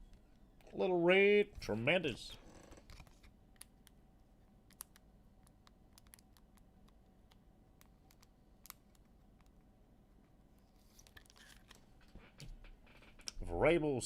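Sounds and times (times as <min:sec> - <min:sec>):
trading cards clicking: 0:04.7 - 0:09.6.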